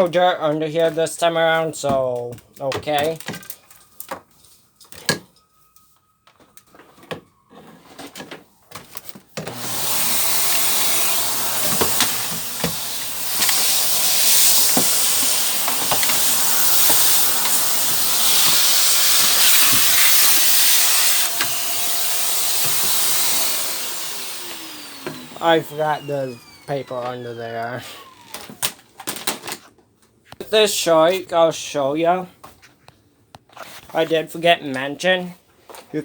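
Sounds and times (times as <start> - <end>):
vacuum cleaner running: 9.4 - 28.8.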